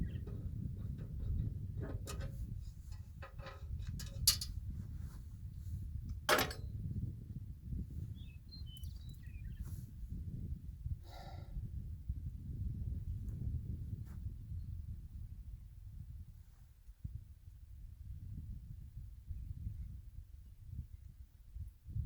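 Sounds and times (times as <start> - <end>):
low steady rumble: 0.0 - 7.7
sharp knocks and clicks: 6.3 - 6.6.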